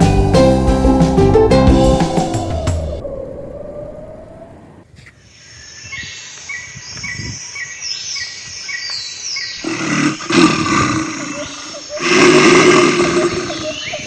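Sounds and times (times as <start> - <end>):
peacock calling: 5.0 - 14.0
bird chirping: 5.1 - 14.0.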